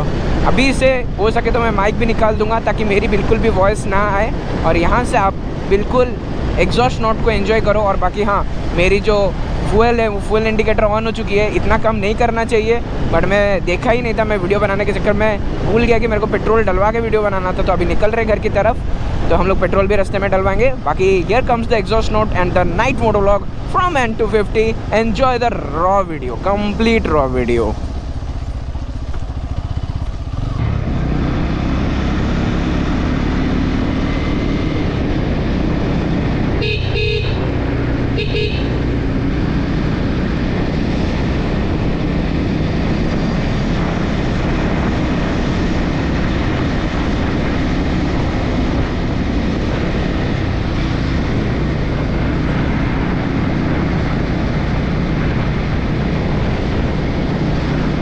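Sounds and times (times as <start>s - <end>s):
motorcycle engine running: 22.1s - 58.0s
vehicle horn: 36.6s - 38.8s.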